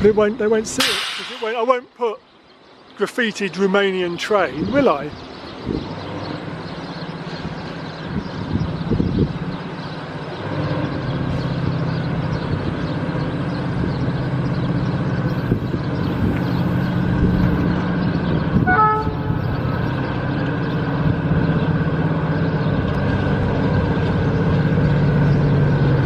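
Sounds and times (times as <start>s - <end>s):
train engine drone: 5.4s - 26.0s
short horn toot: 18.6s - 19.8s.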